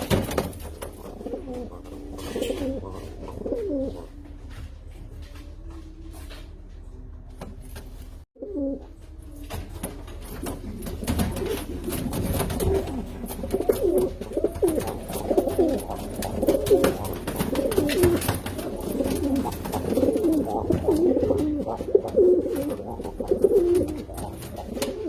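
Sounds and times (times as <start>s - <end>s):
pigeons cooing: 0.0s - 4.2s, 10.3s - 25.0s.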